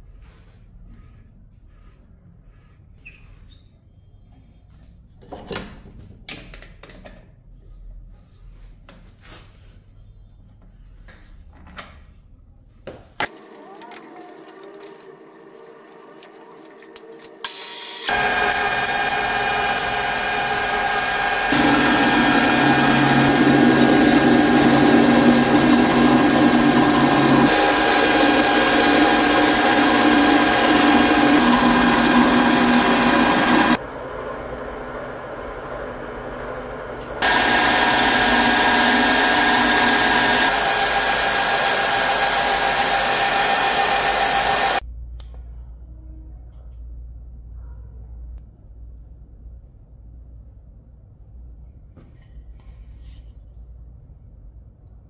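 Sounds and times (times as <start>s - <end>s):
power tool motor whine: 17.4s - 33.8s, 37.2s - 44.8s.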